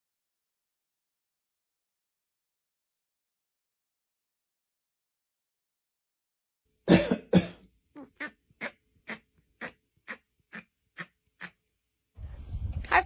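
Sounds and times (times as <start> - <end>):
person coughing: 6.9 - 7.6
short hacking coughs: 6.9 - 7.6.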